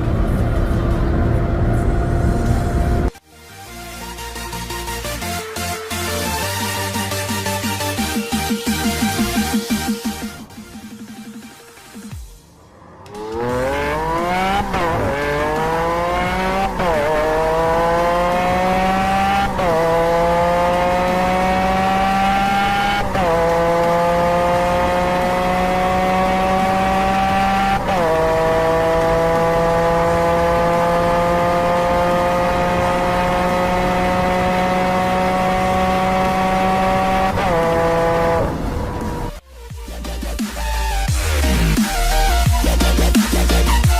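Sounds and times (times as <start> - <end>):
car engine accelerating through gears: 0.0 - 3.1, 12.5 - 39.4.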